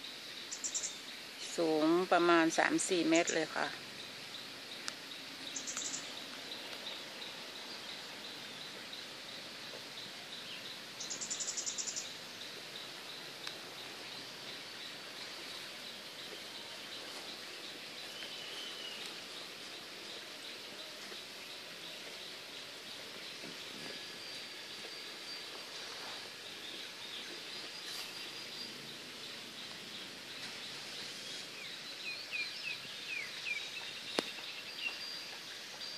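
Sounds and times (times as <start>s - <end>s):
birds singing and calling: 0.0s - 35.9s.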